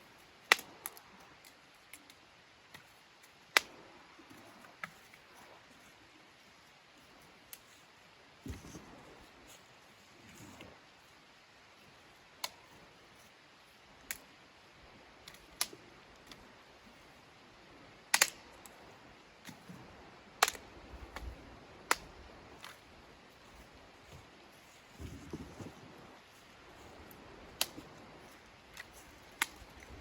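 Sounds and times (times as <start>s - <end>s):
sharp cracks and pops: 0.4s - 5.6s, 12.3s - 12.9s, 15.2s - 16.4s, 18.1s - 18.8s, 20.3s - 24.2s, 26.4s - 30.0s.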